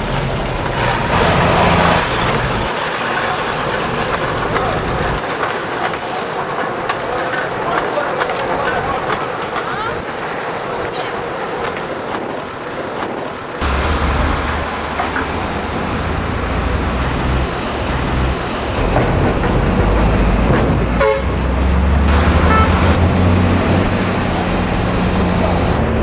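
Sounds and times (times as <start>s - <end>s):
locomotive running close by: 0.0s - 26.0s
short horn toot: 0.8s - 2.3s, 22.1s - 23.0s.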